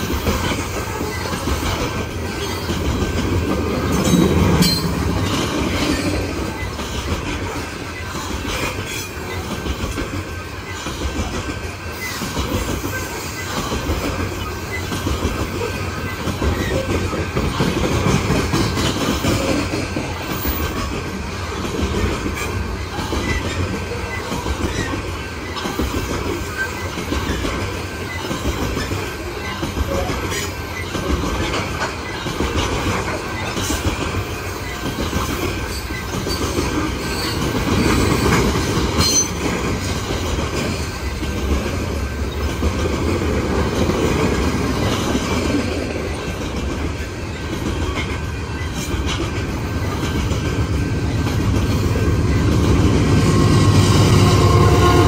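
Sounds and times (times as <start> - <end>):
train cars rumbling past: 0.0 - 55.0
wheels clacking over rail joints: 0.0 - 55.0
high wheel squeal: 35.5 - 40.0.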